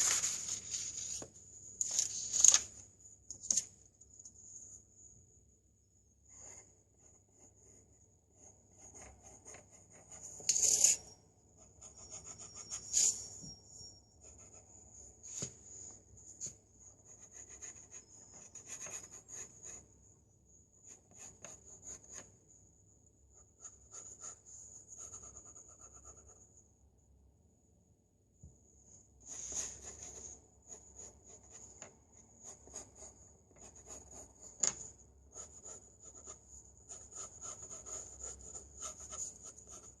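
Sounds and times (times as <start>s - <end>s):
pencil scratching on paper: 6.4s - 13.6s, 14.2s - 14.8s, 16.4s - 19.9s, 20.8s - 22.3s, 23.4s - 26.5s, 29.3s - 40.0s
faint high whine: 10.6s - 15.2s.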